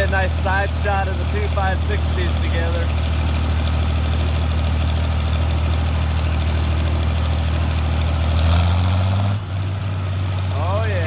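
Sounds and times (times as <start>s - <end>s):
tractor engine humming: 0.0s - 11.0s.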